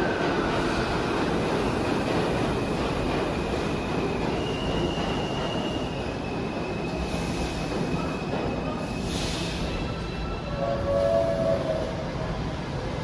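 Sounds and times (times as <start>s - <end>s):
subway train rumbling: 0.0s - 13.0s
train wheels squealing: 3.6s - 12.0s.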